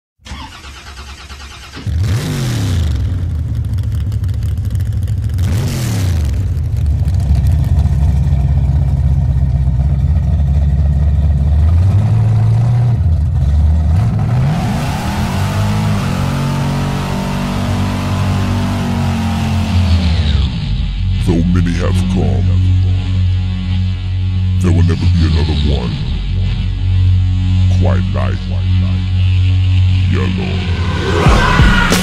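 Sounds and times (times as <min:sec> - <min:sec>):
car engine revving: 0:00.3 - 0:32.0.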